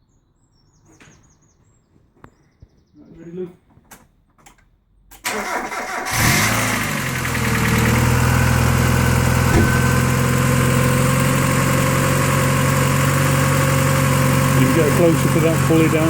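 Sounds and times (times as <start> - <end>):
car engine starting and idling: 5.2 - 16.0
starter motor cranking: 5.3 - 11.3.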